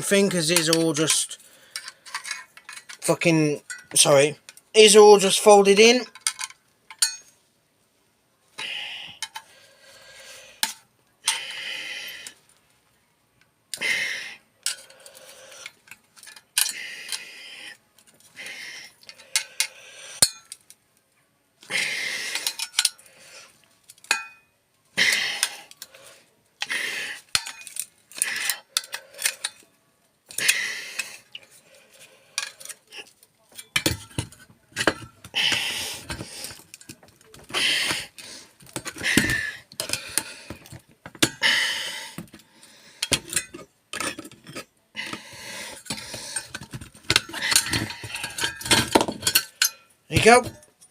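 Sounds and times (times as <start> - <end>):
sheet metal clinking and scraping: 0.1 - 4.3, 6.0 - 7.3, 27.2 - 29.6, 32.4 - 41.5, 43.0 - 50.9.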